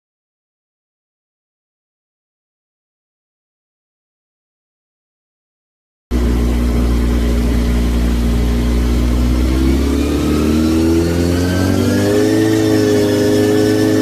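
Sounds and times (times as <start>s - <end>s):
motorcycle engine revving: 6.1s - 14.0s.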